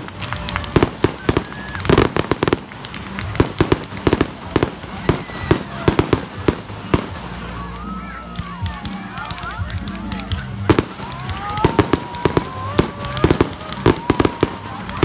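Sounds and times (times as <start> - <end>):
faint firework whistle: 0.0 - 2.7
fireworks popping and crackling: 0.0 - 15.0.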